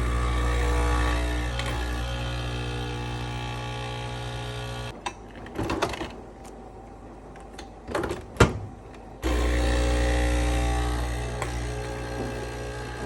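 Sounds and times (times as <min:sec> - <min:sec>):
small electric motor humming: 0:00.0 - 0:05.0, 0:09.2 - 0:13.0.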